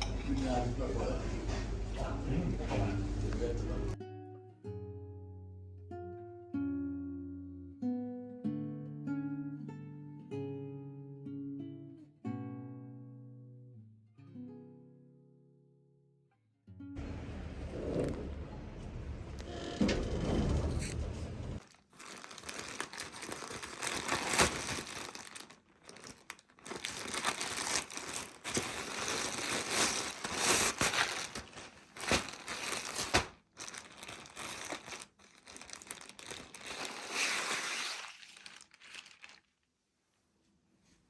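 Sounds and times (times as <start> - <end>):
packaging crinkling: 21.6 - 39.6.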